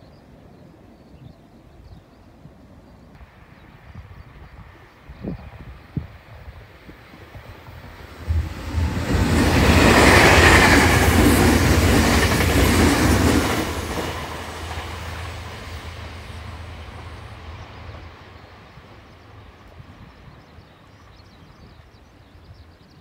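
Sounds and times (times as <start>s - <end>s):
train wheels rumbling and clattering: 8.0s - 18.5s.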